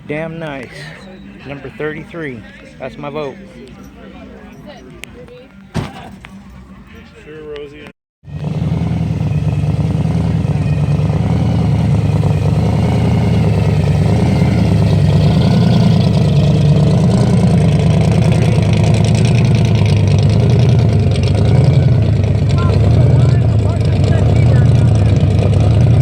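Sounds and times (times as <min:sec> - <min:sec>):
car engine running: 0:08.3 - 0:26.0.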